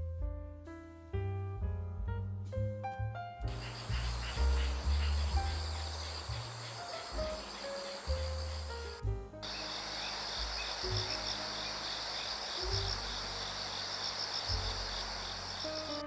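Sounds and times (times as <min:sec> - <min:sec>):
soft background music: 0:00.0 - 0:16.0
insects pulsing chorus: 0:03.5 - 0:16.0.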